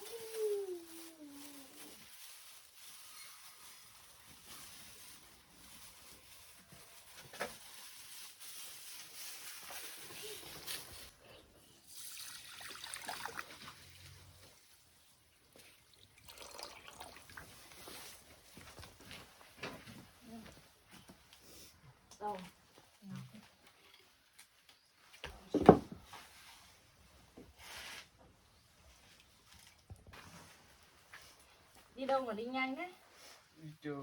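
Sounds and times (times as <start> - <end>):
water trickling and splashing: 11.8 - 14.8, 15.4 - 18.2.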